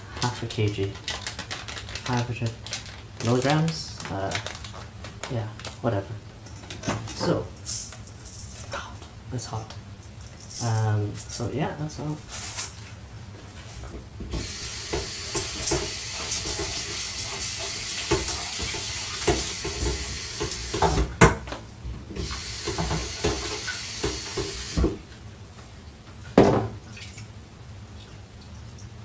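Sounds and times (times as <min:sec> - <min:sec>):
tap water running into metal pot: 0:14.4 - 0:21.0, 0:22.2 - 0:24.8.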